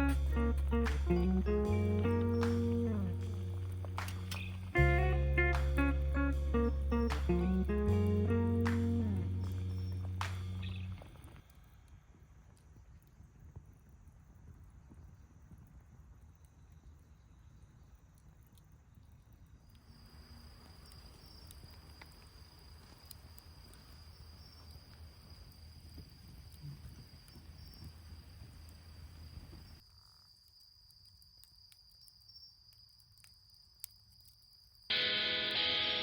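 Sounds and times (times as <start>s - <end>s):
low hum: 0.0s - 11.3s
wood fire crackling: 0.0s - 16.6s, 18.1s - 29.8s.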